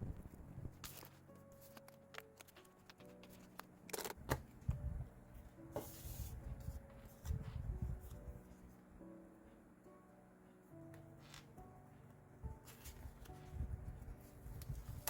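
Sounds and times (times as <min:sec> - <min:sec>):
soft piano notes: 0:00.0 - 0:15.0
paper rustling: 0:00.8 - 0:04.2, 0:12.6 - 0:13.5.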